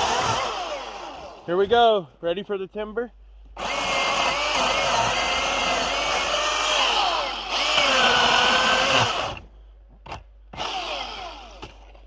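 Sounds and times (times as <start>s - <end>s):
electric chainsaw cutting wood: 0.0s - 1.5s, 3.6s - 9.4s, 10.1s - 11.9s.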